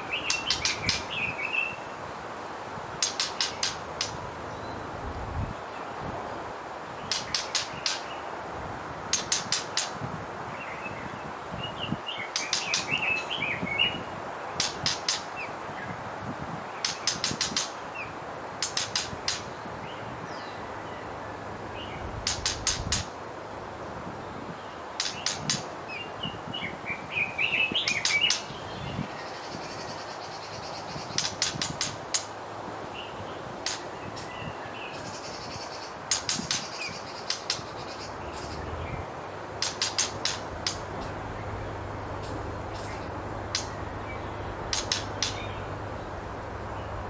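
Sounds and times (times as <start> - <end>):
high thin bird chirps: 0.0 - 1.8, 3.0 - 4.2, 11.8 - 14.0, 21.9 - 23.1, 25.0 - 25.7, 27.2 - 32.3, 33.6 - 38.6, 42.2 - 45.8
steady background hiss: 0.0 - 47.0
bird clicking calls: 0.2 - 1.2, 3.0 - 4.2, 7.1 - 8.1, 9.1 - 10.0, 12.2 - 13.3, 14.6 - 15.3, 16.8 - 17.8, 18.6 - 19.5, 22.2 - 23.1, 25.0 - 25.7, 27.6 - 28.6, 31.0 - 32.3, 33.6 - 34.3, 35.0 - 38.7, 39.6 - 41.2, 42.2 - 45.8.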